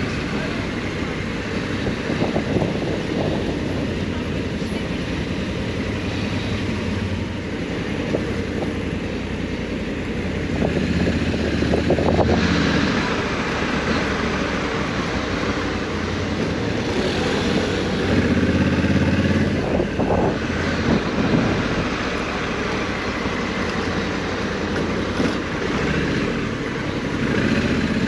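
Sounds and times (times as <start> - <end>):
wind rushing over microphone: 0.6 - 4.6, 10.4 - 23.5.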